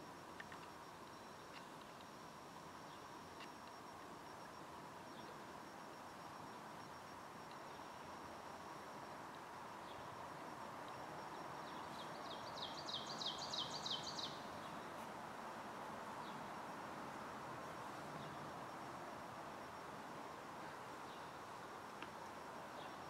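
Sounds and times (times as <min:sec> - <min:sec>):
faint outdoor hiss: 0:00.0 - 0:23.0
faint bird chirps: 0:02.8 - 0:15.0.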